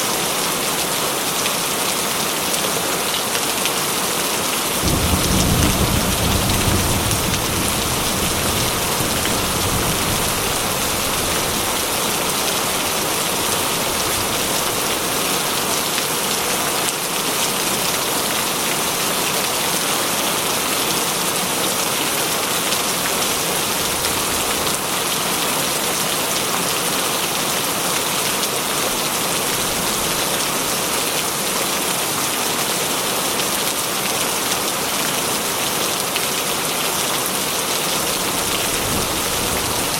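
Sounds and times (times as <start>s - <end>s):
heavy rain on a tin roof: 0.0s - 39.9s
thunder rumble: 4.8s - 14.8s.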